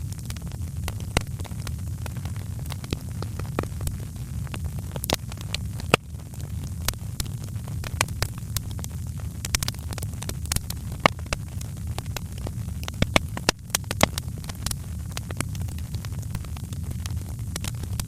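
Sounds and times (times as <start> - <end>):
steady low-pitched noise: 0.0 - 18.0
wood fire crackling and popping: 0.0 - 18.0.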